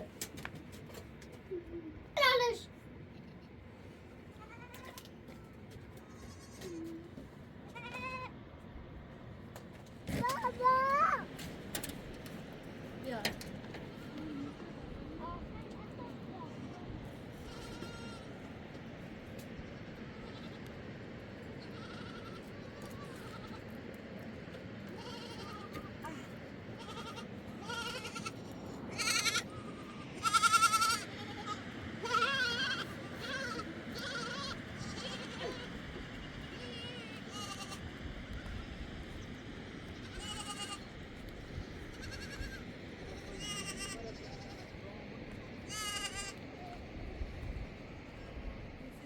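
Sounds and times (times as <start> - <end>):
sheep or goats bleating: 4.4 - 7.0, 7.7 - 8.3, 17.4 - 18.3, 20.1 - 20.7, 21.6 - 23.6, 25.0 - 38.6, 40.0 - 40.9, 41.9 - 44.7, 45.7 - 46.4.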